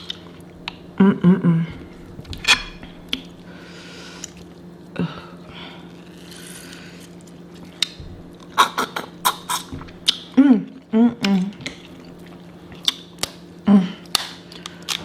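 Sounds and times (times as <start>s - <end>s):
faint steady hum: 0.0s - 15.0s
wet chewing and smacking: 7.2s - 8.6s, 9.5s - 10.3s, 11.2s - 15.0s.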